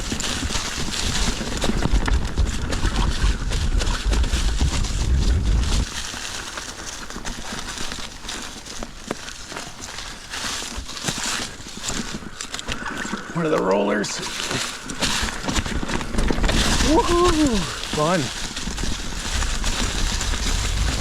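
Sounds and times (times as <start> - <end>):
wind rumbling on microphone: 0.0 - 6.2, 14.4 - 21.0
bike tyres crunching over leaves: 0.0 - 21.0
bike knocks and rattles: 14.5 - 21.0.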